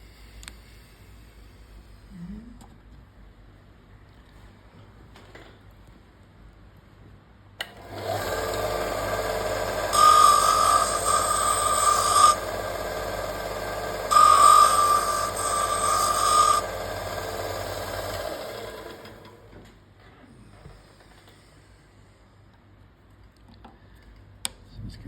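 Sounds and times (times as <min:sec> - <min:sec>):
electric power tool running: 0:07.7 - 0:19.6.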